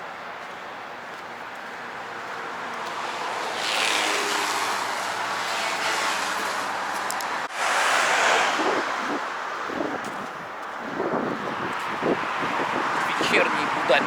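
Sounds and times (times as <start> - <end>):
cars passing: 0.0 - 14.0.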